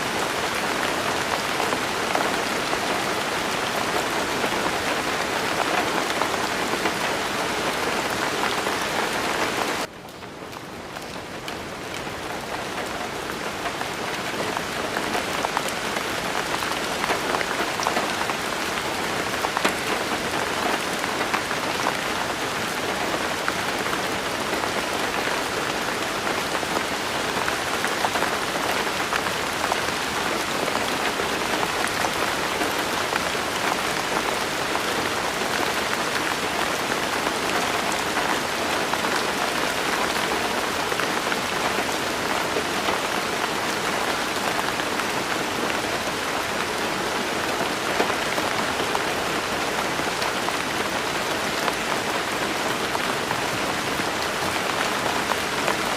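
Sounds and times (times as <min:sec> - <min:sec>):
steady rainfall: 0:00.0 - 0:55.9.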